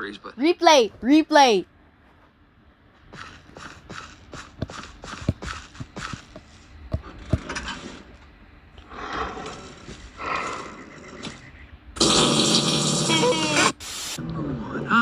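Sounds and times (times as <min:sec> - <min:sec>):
light taps: 0:03.4 - 0:07.8
sharp thumps: 0:03.4 - 0:07.8.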